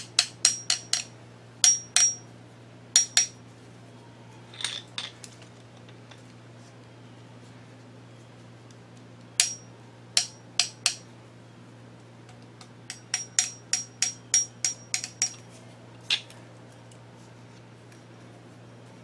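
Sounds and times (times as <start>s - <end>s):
grinding wheel tapped ringing: 12.9s - 15.4s.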